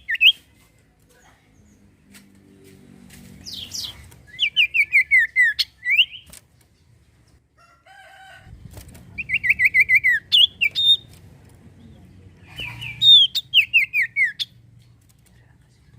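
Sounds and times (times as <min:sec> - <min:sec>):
low bird chatter: 0:00.0 - 0:08.0, 0:08.6 - 0:15.9
bird singing rapid falling notes: 0:03.4 - 0:07.1, 0:09.2 - 0:11.2, 0:12.5 - 0:14.6.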